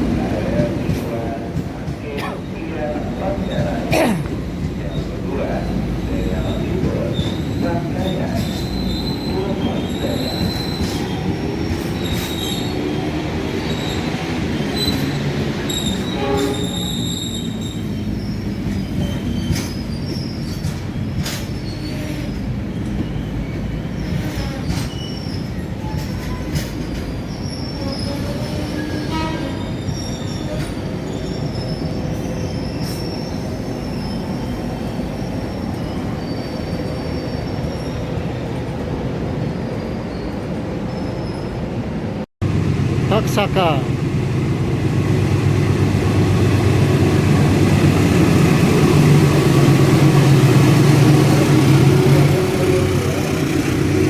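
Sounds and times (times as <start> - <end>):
train wheels rumbling on rails: 0.0 - 54.0
high-pitched wheel squeal: 6.4 - 12.8, 14.8 - 20.6.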